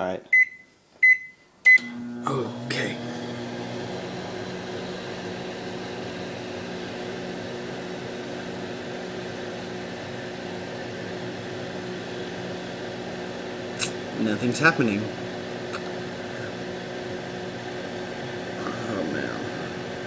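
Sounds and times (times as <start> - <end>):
microwave oven humming: 0.4 - 20.0
fan noise: 11.1 - 20.0.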